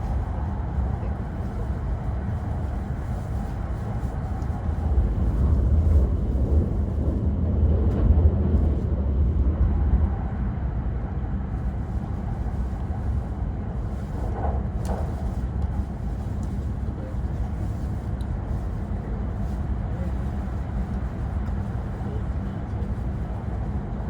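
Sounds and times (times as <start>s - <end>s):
train rumble inside passenger car: 0.0s - 24.0s.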